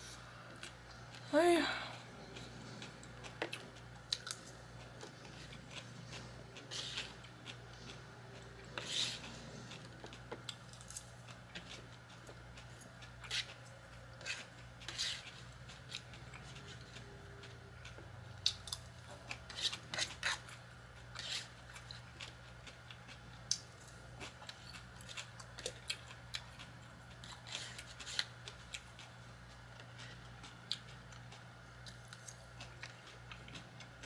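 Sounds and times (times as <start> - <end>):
low steady hum: 0.0 - 34.0
eating crunches and clicks: 2.3 - 8.0.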